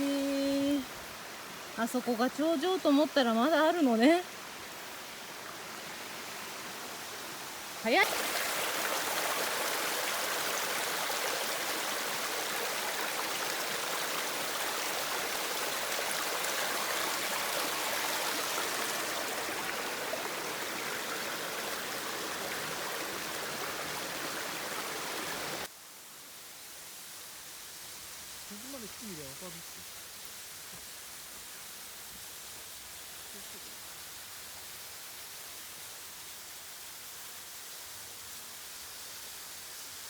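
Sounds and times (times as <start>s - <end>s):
quiet hiss: 0.0s - 40.0s
waterfall rushing: 0.8s - 25.7s.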